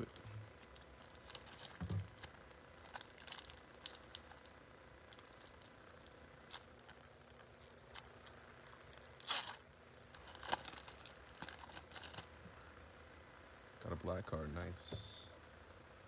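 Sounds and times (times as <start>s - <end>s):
foil wrapper crinkling: 0.0s - 12.4s
small crackles and clicks: 0.0s - 12.7s.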